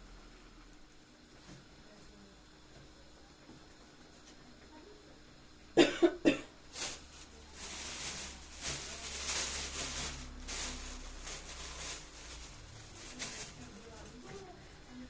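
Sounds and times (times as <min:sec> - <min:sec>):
person coughing: 0:05.8 - 0:06.5
steady hissing rustle: 0:06.6 - 0:15.0.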